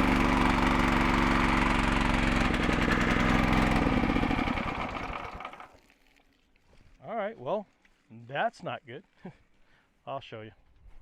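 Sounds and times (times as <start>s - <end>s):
pressure washer engine running: 0.0s - 5.7s.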